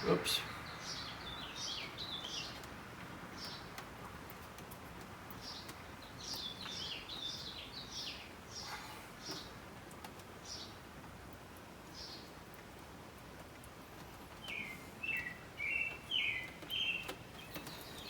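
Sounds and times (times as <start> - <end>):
small bird chirping: 5.4 - 9.6, 14.4 - 18.0.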